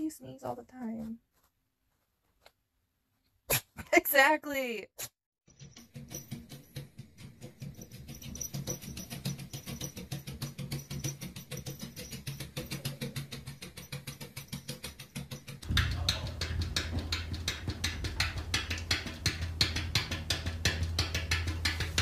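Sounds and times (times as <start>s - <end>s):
music with percussive beat: 7.7s - 22.0s
deep bass note: 15.7s - 19.1s.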